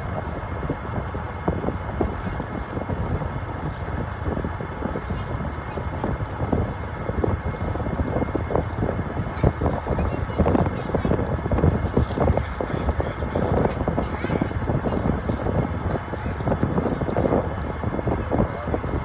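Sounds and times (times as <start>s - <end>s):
ferry engine and water drone: 0.0s - 19.0s
wind buffeting microphone: 0.0s - 19.0s.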